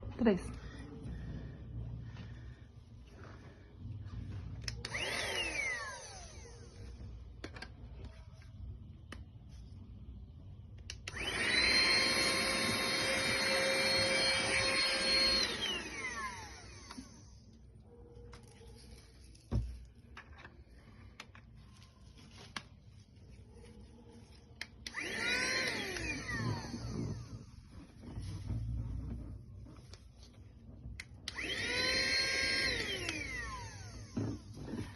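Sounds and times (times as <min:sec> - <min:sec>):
handheld vacuum motor whining: 0:02.2 - 0:08.5, 0:10.9 - 0:17.8, 0:24.5 - 0:34.9.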